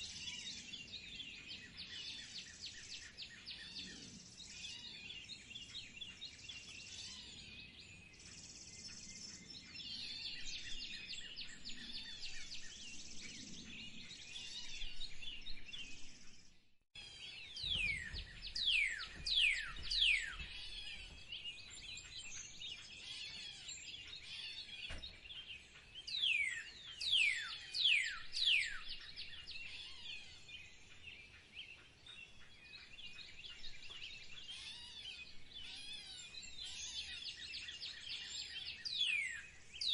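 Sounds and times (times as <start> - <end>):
wild birds chirping: 0.0 - 39.9
bird whistling downward notes: 17.5 - 21.2.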